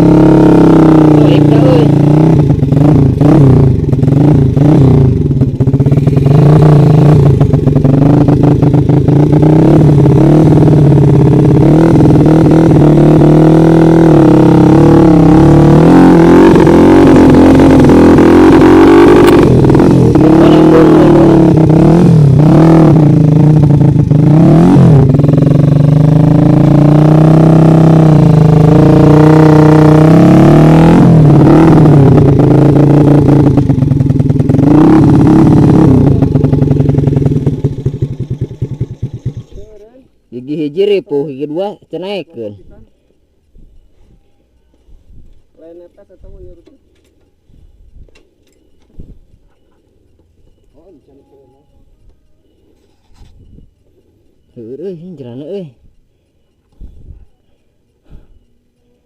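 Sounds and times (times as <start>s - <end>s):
dirt bike engine revving: 0.0s - 39.8s
clatter: 31.1s - 39.8s.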